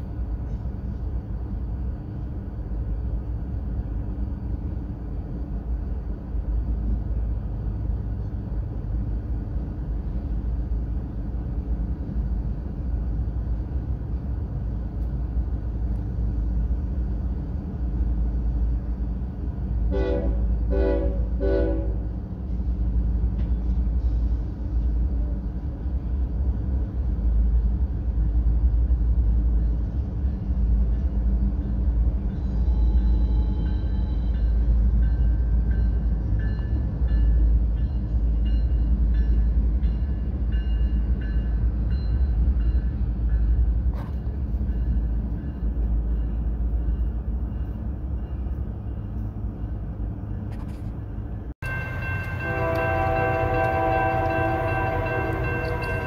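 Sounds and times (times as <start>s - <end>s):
freight train rumbling: 0.0s - 56.0s
train horn blasts: 19.9s - 22.1s, 51.6s - 56.0s.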